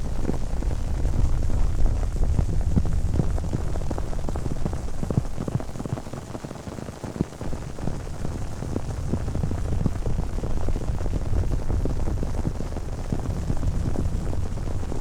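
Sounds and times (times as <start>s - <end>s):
low rumble: 0.0s - 5.9s
crackling patter of small clicks: 0.0s - 15.0s.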